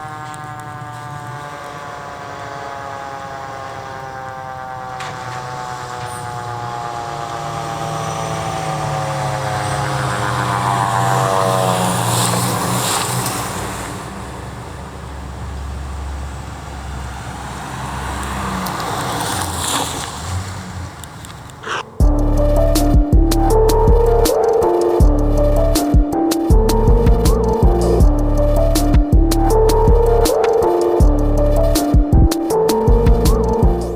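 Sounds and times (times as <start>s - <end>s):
mechanical siren winding down: 0.0s - 14.3s, 21.6s - 33.9s
fire engine passing by: 0.0s - 33.9s.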